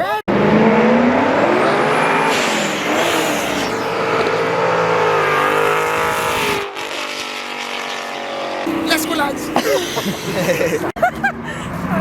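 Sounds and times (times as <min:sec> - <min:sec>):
car engine revving: 0:00.3 - 0:10.6.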